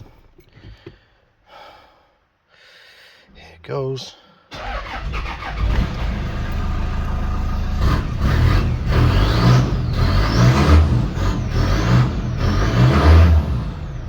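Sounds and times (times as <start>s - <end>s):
diesel engine rumbling: 4.6s - 14.0s.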